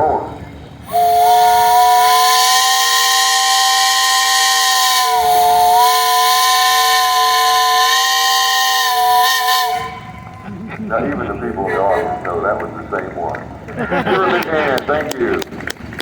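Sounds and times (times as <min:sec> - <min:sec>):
steam hissing: 0:00.8 - 0:10.3
steam whistle blast: 0:00.9 - 0:10.2.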